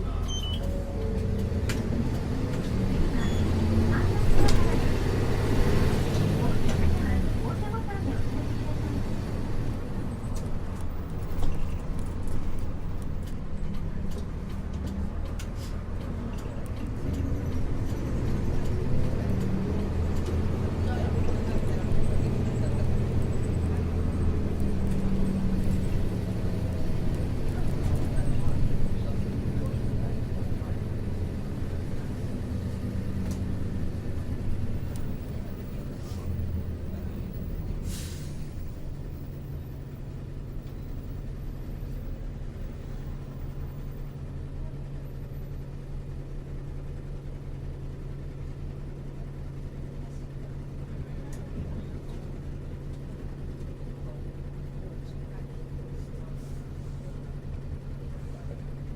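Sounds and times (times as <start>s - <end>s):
diesel bus engine drone: 0.0s - 58.9s
short hisses: 37.8s - 38.5s.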